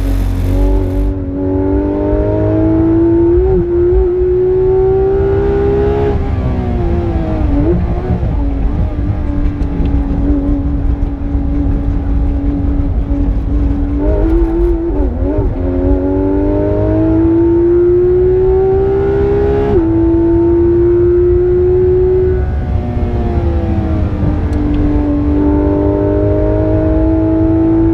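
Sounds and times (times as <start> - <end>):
heavy low rumble: 0.0 - 1.7, 6.4 - 16.2, 22.4 - 25.2
car engine revving: 0.0 - 27.9.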